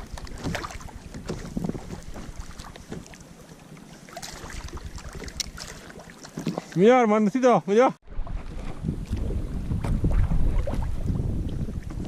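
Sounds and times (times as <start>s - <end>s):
wind buffeting microphone: 0.0s - 2.9s, 4.4s - 5.8s, 8.0s - 12.0s.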